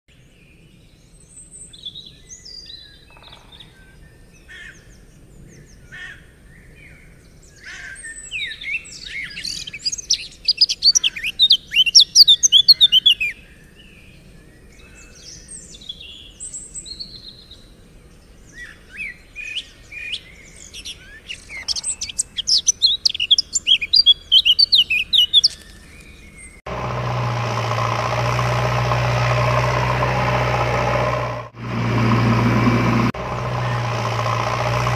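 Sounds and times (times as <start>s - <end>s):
small birds chirping and trilling: 0.2s - 26.6s
steady engine hum: 26.7s - 34.9s.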